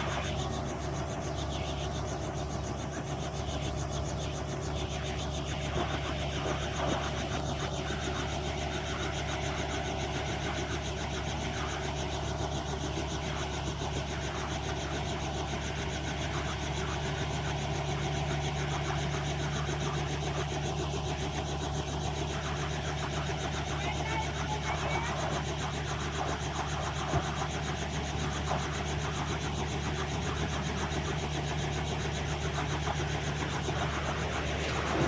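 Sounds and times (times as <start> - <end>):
helicopter engine and rotor drone: 0.0 - 35.0.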